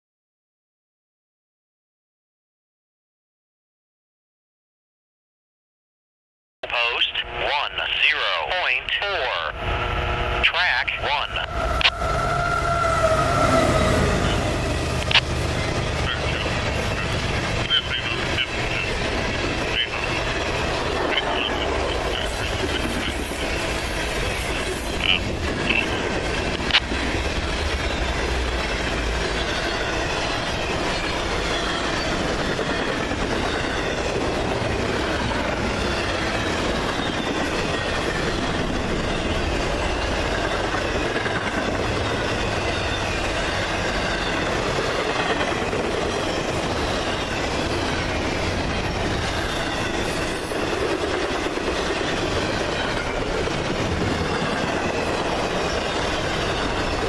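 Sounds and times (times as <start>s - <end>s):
train wheels rumbling on rails: 9.6s - 57.0s
clickety-clack over rail joints: 14.0s - 57.0s.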